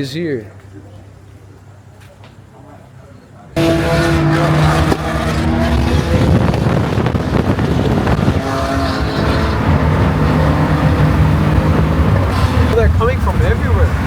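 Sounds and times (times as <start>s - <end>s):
sports car engines running: 3.5s - 14.0s.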